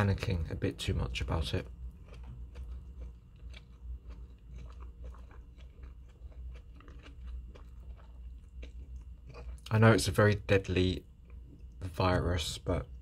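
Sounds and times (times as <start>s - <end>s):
low steady hum: 0.0s - 13.0s
person chewing: 1.2s - 9.8s.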